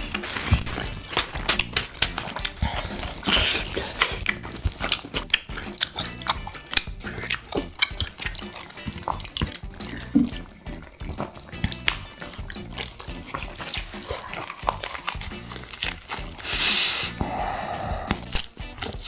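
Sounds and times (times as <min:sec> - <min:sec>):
wet chewing and mouth clicks: 0:00.0 - 0:19.0.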